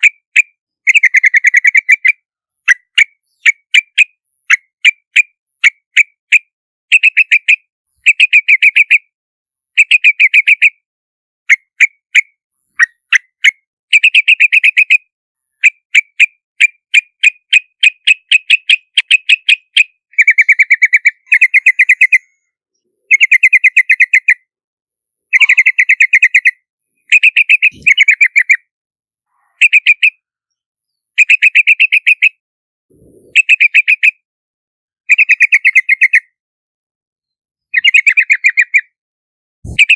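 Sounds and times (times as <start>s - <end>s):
bulbul chattering calls: 17.8s - 22.3s, 25.3s - 28.6s, 39.7s - 39.9s.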